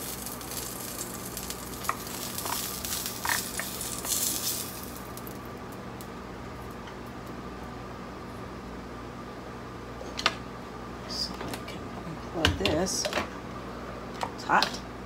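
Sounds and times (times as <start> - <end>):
fish sizzling in a pan: 0.0 - 5.5.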